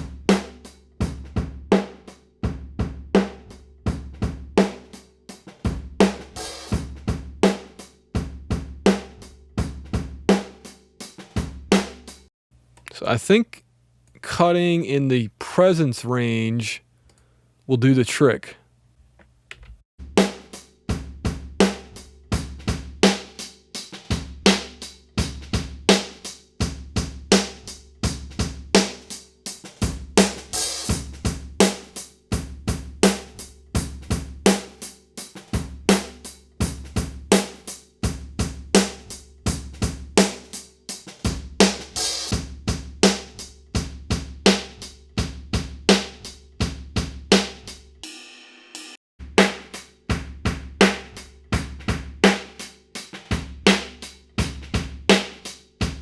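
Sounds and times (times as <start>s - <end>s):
drum kit playing a steady beat: 0.0s - 12.3s, 20.0s - 56.0s.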